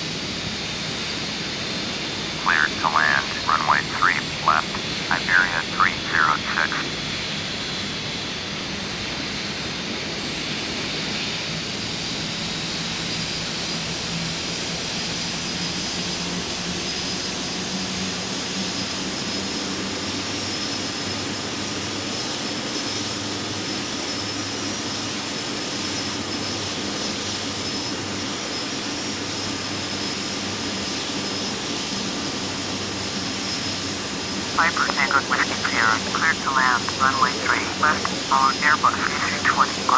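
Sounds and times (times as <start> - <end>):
jet engines with high whine: 0.0 - 39.9.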